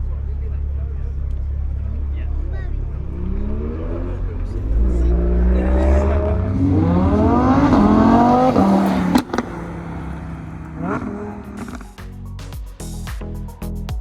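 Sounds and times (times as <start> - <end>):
car engine revving: 0.0 - 12.1
exhaust pop: 6.2 - 12.6.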